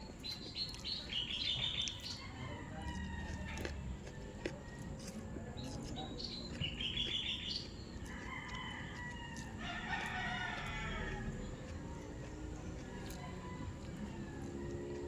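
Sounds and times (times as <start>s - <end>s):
small birds chirping: 0.0s - 15.0s
rooster crowing: 2.2s - 3.8s, 8.0s - 11.7s, 12.8s - 15.0s.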